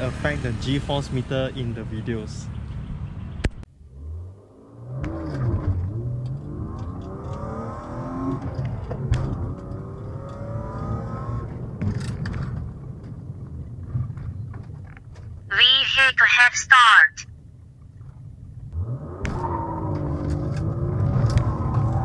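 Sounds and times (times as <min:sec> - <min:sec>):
car engine accelerating: 0:03.8 - 0:14.2, 0:18.7 - 0:22.0.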